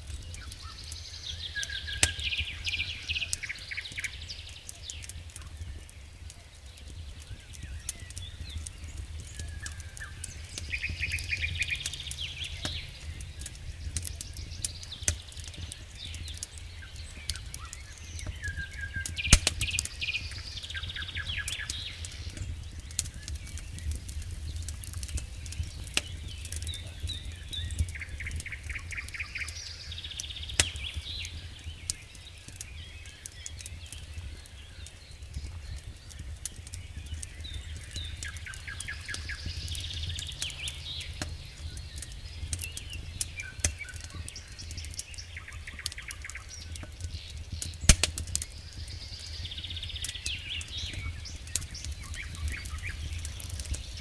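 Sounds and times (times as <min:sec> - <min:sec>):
campfire crackling and popping: 0:00.0 - 0:54.0
steady low rumble: 0:07.4 - 0:18.4, 0:36.8 - 0:43.7.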